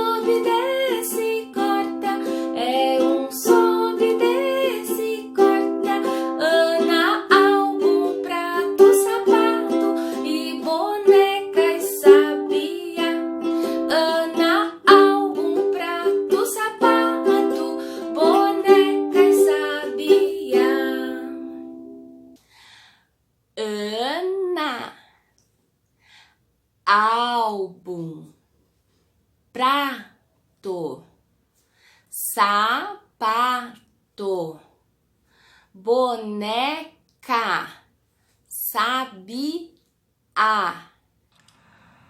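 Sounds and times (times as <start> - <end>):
person singing: 0.0 - 21.7
plucked string instrument: 0.0 - 22.3.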